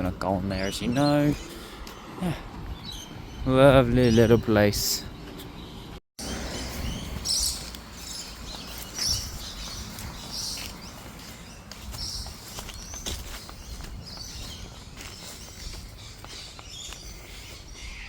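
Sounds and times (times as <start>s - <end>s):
birds chirping: 0.0s - 18.0s
wind rumble on microphone: 2.4s - 4.4s, 6.5s - 18.0s
light footsteps: 7.6s - 17.7s.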